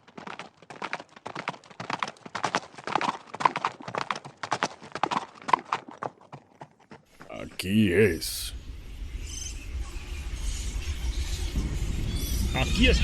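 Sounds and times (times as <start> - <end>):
horse hooves clip-clopping: 0.0 - 7.6.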